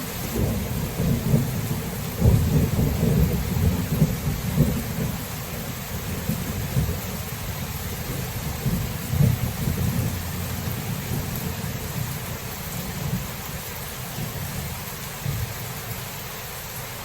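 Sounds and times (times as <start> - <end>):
steady rain: 0.0 - 17.0
rolling thunder: 0.2 - 13.6.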